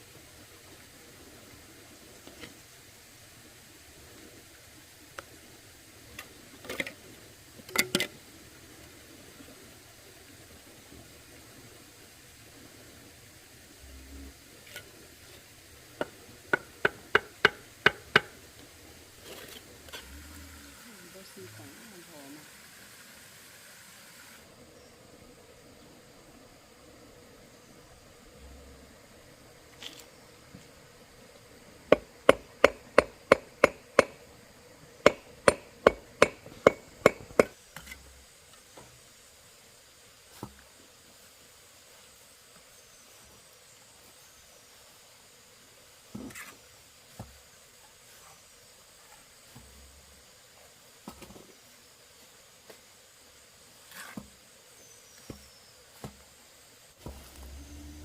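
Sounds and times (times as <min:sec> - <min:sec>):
sharp knocks: 0:16.0 - 0:18.4, 0:31.9 - 0:34.2, 0:35.1 - 0:37.5.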